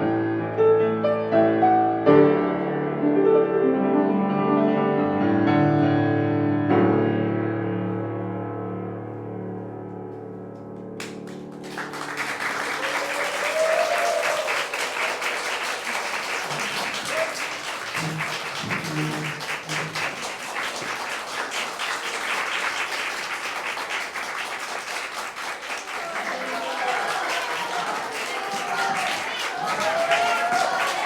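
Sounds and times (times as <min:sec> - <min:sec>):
audience applause: 0:11.0 - 0:31.0.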